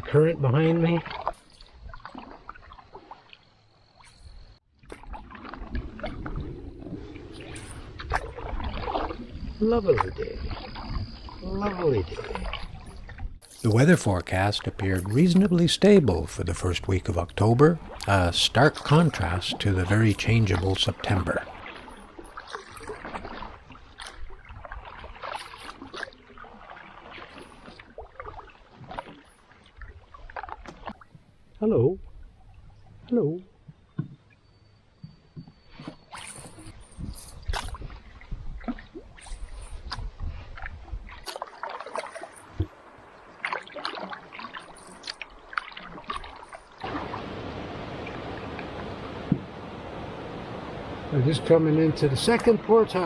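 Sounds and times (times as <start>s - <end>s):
canoe paddle strokes in water: 1.0s - 3.5s, 4.8s - 9.6s, 10.3s - 31.3s, 35.0s - 53.0s
water dripping off paddle: 13.4s - 31.0s, 40.6s - 49.6s
steady wind-like hiss: 46.8s - 52.8s.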